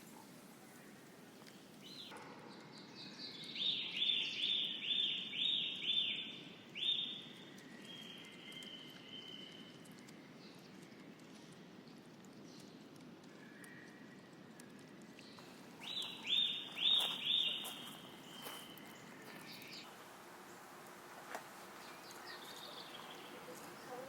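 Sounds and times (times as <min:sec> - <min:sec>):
songbird singing: 0:00.0 - 0:11.0, 0:15.2 - 0:24.0
low background hiss: 0:15.3 - 0:24.0.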